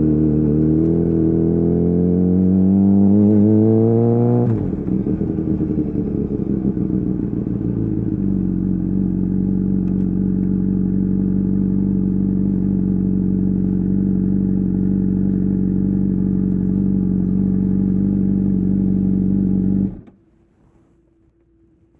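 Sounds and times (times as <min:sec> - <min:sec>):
motorcycle engine idling: 0:04.6 - 0:20.0.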